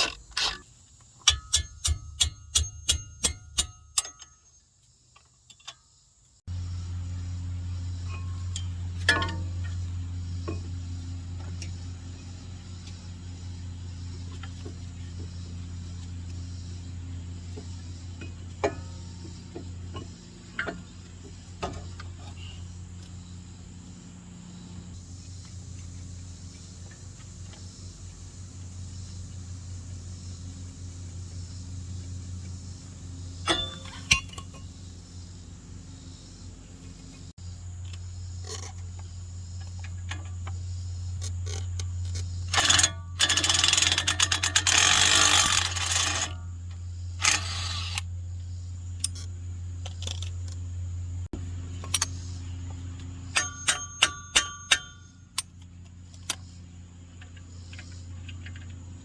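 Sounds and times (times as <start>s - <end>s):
metal clicks: 0.0s - 4.5s, 41.2s - 46.4s, 47.2s - 48.1s, 51.7s - 52.3s, 53.3s - 56.5s
sharp ringing metal taps: 1.2s - 4.6s, 33.4s - 34.7s, 42.5s - 46.4s, 51.7s - 52.3s, 53.3s - 55.6s
low steady hum: 5.5s - 59.0s
rattling power tool: 42.5s - 46.4s, 47.2s - 48.1s.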